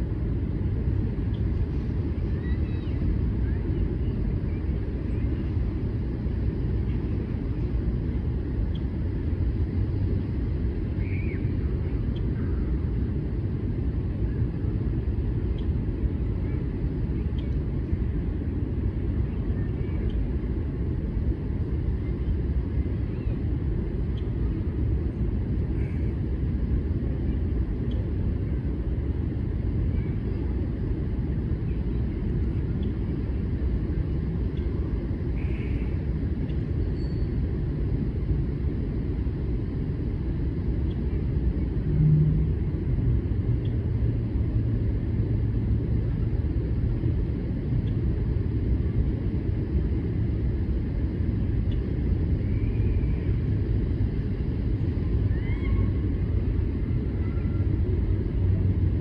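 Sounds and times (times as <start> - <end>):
low outdoor rumble: 0.0 - 59.0
steady low drone: 0.0 - 59.0
brief low hum: 41.6 - 42.7.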